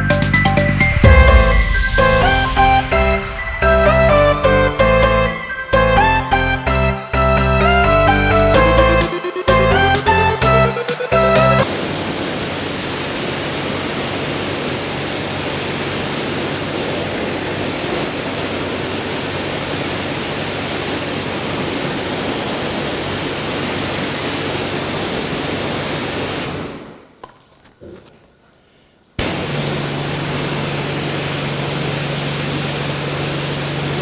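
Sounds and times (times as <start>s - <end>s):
background music: 0.0s - 11.7s
pressure washer spraying water: 8.6s - 27.0s, 29.2s - 34.0s.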